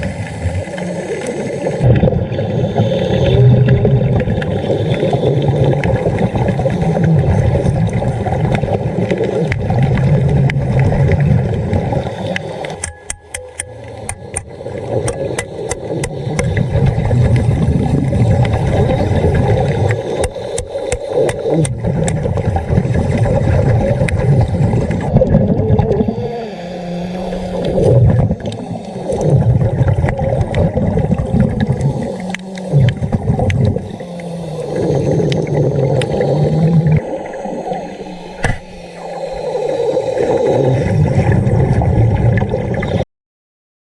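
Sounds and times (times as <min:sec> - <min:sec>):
diver breathing and bubbles: 0:00.0 - 0:43.0
sharp clicks: 0:12.8 - 0:16.6, 0:19.9 - 0:22.2.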